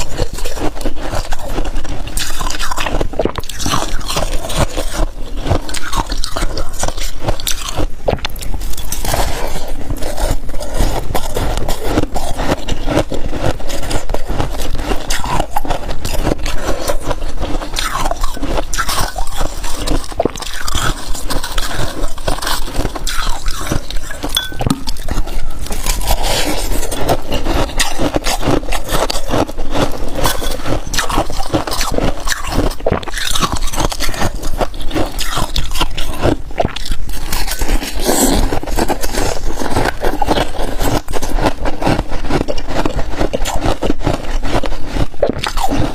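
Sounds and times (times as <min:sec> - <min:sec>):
crunching frost while chewing: 0:00.0 - 0:45.9
scraping: 0:18.7 - 0:33.9.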